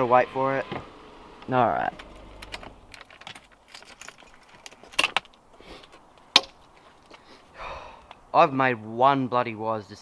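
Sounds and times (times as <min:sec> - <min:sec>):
car keys jangling: 0:02.0 - 0:05.4.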